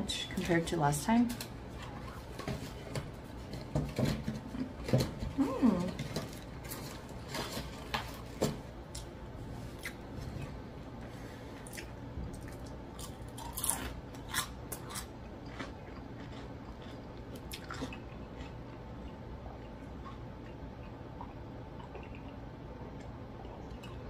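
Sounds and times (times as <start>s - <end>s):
person chewing food: 9.7s - 10.6s, 11.5s - 24.0s.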